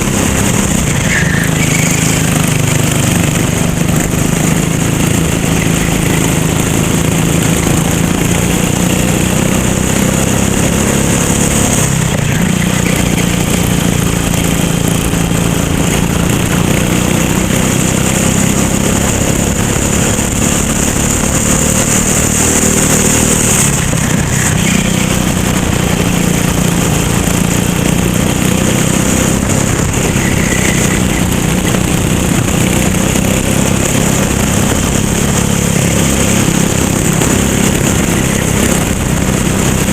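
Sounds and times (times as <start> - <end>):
racing kart engine at high revs: 0.0 - 39.9.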